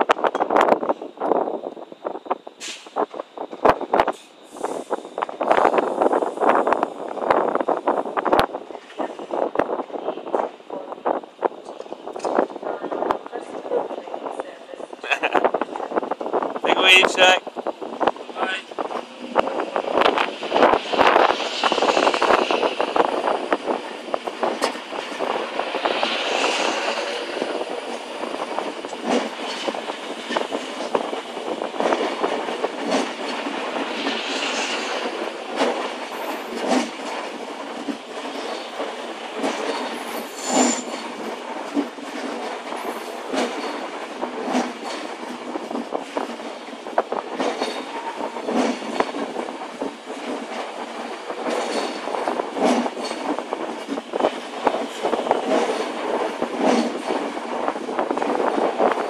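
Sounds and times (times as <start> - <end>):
wheels clicking over rail joints: 27.8 - 33.6, 35.0 - 59.0.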